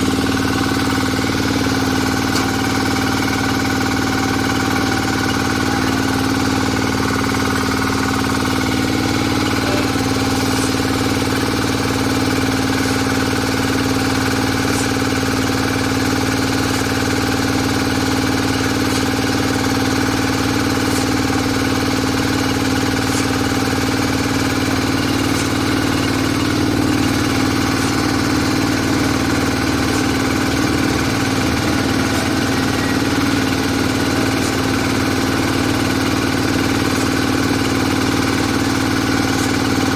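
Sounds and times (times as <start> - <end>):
diesel engine humming: 0.0 - 39.9.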